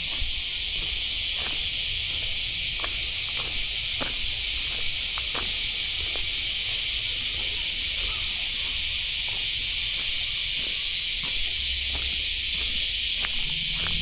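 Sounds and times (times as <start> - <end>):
footsteps walking: 0.0 - 14.0
insects buzzing: 0.0 - 14.0.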